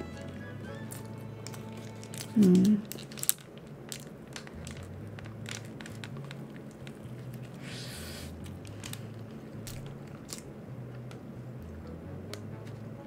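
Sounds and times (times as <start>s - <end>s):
chewing sandwich: 0.7s - 11.1s.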